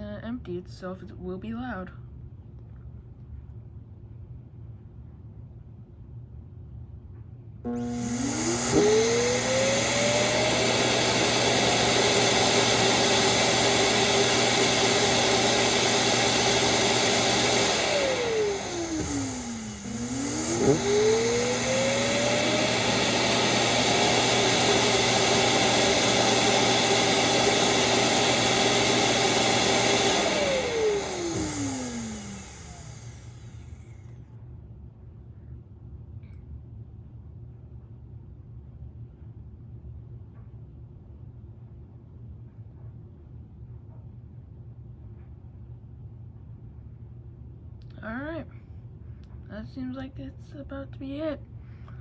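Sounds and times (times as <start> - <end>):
evacuation fan motor whining: 7.7 - 34.1.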